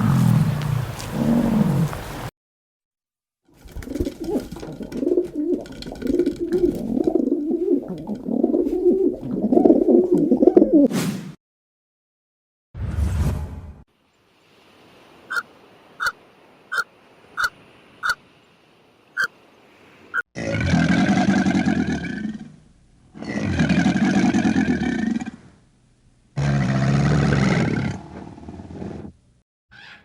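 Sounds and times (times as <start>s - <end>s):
farm animal calling loudly: 15.3s - 18.2s.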